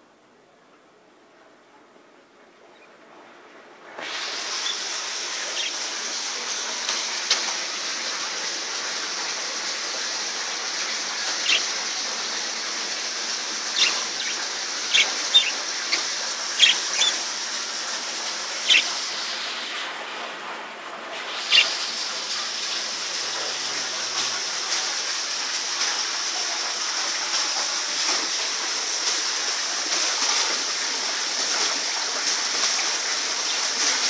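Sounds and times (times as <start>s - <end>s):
steady rushing hiss: 2.4s - 34.0s
parrots chirping: 4.0s - 6.6s, 10.4s - 19.8s, 21.3s - 24.0s.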